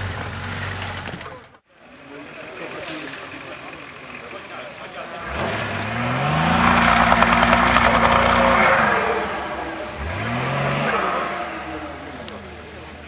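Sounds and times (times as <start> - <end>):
engine revving hard: 5.2 - 12.8.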